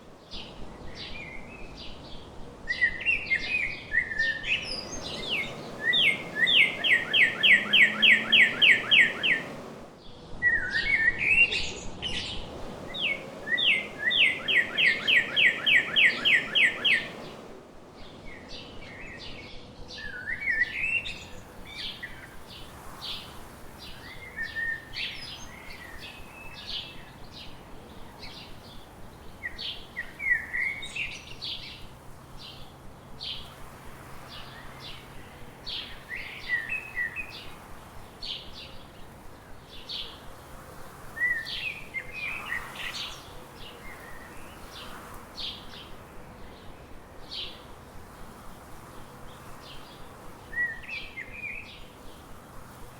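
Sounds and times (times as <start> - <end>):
soft bird chirps: 0.3 - 9.9, 10.5 - 52.4
bird song with trill: 0.3 - 33.6, 34.2 - 52.4.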